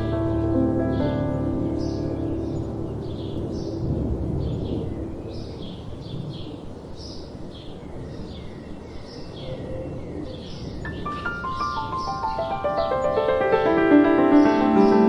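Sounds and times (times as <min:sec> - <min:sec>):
ambient music: 0:00.0 - 0:05.6, 0:11.0 - 0:15.0
gentle wind rushing: 0:00.0 - 0:15.0
soft birdsong chirps: 0:00.0 - 0:15.0.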